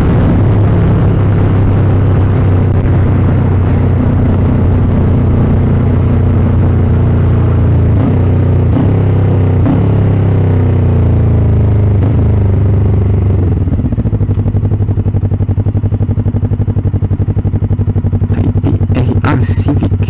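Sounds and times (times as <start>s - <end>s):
motorcycle engine idling: 10.6s - 20.0s.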